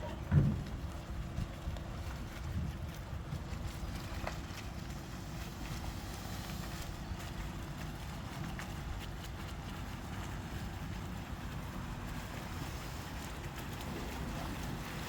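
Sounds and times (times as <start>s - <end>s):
wind buffeting microphone: 0.1s - 6.2s.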